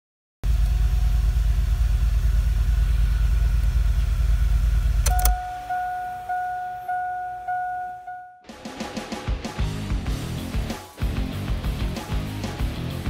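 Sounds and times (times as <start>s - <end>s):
car engine idling: 0.5s - 8.1s
clicks: 5.0s - 7.0s
guitar music: 9.6s - 13.0s.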